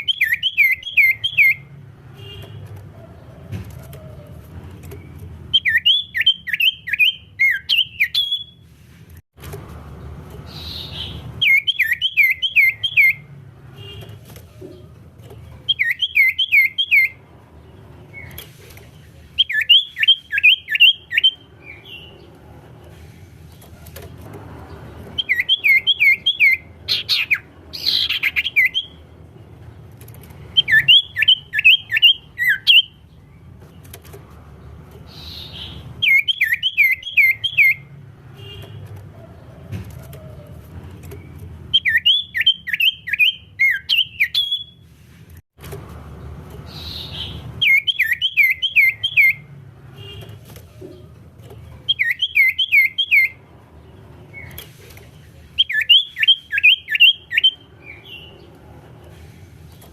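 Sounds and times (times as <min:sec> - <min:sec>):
bird singing descending whistles: 0:00.0 - 0:01.7, 0:05.5 - 0:08.6, 0:10.6 - 0:13.2, 0:15.7 - 0:17.2, 0:19.4 - 0:21.4, 0:25.2 - 0:29.0, 0:30.6 - 0:33.0, 0:35.2 - 0:37.9, 0:41.7 - 0:44.8, 0:46.8 - 0:49.4, 0:51.9 - 0:53.4, 0:55.6 - 0:58.3.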